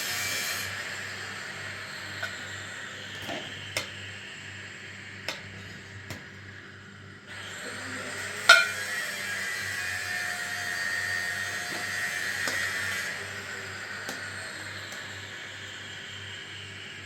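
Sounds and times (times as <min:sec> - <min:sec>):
metal tools clinking: 0:08.5 - 0:08.8.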